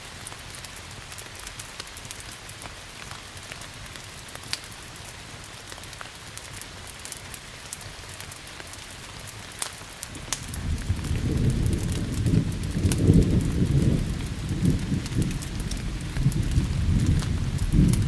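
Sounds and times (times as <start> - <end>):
steady rain: 0.0 - 18.0
wood fire crackling: 0.0 - 18.0
low thunder rumble: 10.1 - 18.0.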